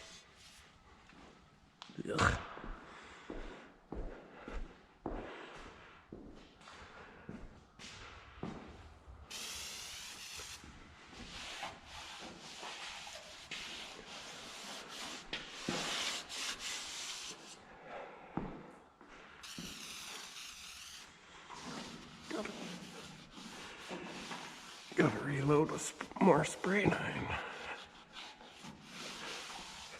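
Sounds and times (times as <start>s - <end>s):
sprayer hissing liquid: 9.3s - 10.7s, 19.4s - 25.4s
scrubbing on metal: 19.4s - 29.9s.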